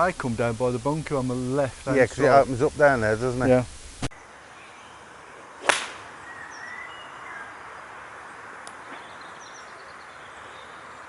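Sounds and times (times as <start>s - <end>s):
open-air background hiss: 0.0s - 11.0s
short bird chirps: 4.6s - 7.6s.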